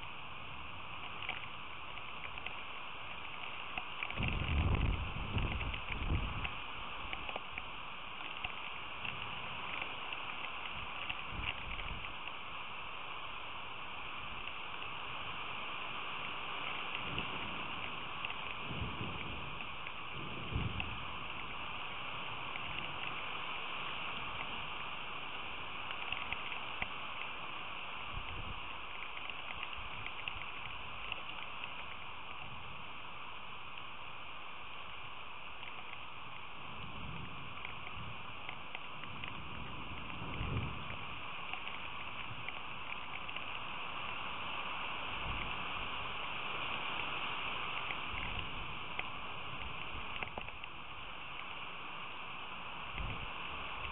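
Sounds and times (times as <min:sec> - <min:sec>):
steady rain hissing: 0:00.0 - 0:53.9
drop ticks: 0:01.0 - 0:12.4, 0:25.8 - 0:27.4, 0:28.2 - 0:32.6, 0:35.5 - 0:36.1, 0:37.1 - 0:43.6, 0:47.7 - 0:51.6.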